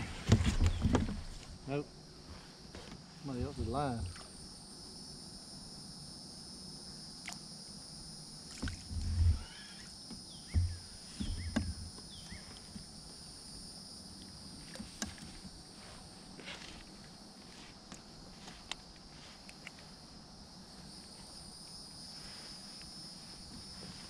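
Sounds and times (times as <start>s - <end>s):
high-pitched insect drone: 3.5s - 14.1s
low thumps and clicks: 10.5s - 12.0s.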